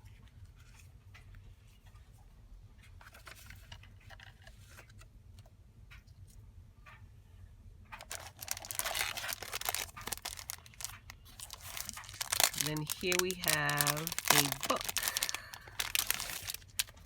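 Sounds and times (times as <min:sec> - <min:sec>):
plastic packaging crinkling: 0:08.0 - 0:17.0.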